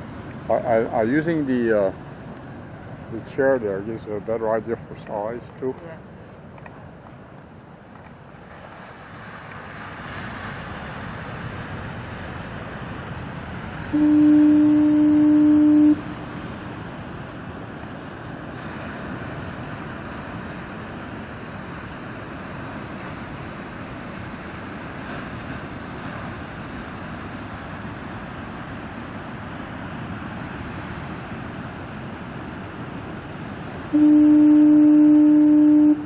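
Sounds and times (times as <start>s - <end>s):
heavy surf: 0.0s - 36.0s
foghorn blast: 13.9s - 16.3s, 33.9s - 36.0s.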